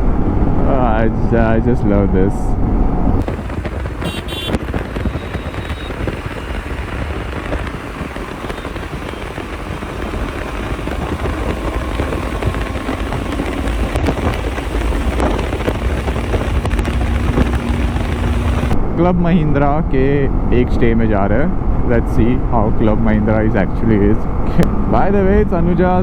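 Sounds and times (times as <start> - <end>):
road noise: 0.0 - 26.0
wind rush over microphone: 0.0 - 26.0
motorcycle engine: 3.2 - 18.8.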